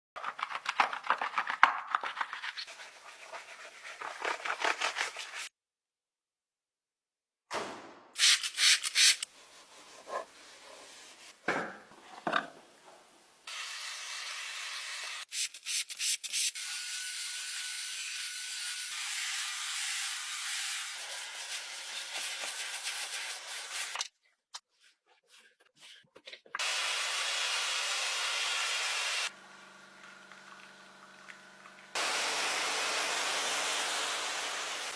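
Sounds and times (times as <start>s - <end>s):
scratchy scrubbing strokes: 1.9s - 5.5s, 24.6s - 26.5s
car wash water spraying: 32.0s - 34.9s.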